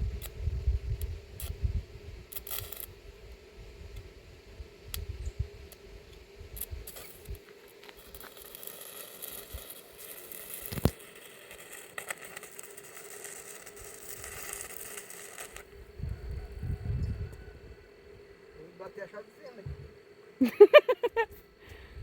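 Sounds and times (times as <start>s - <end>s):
arc welding crackling: 0.0s - 16.6s
steady hum: 0.0s - 22.0s.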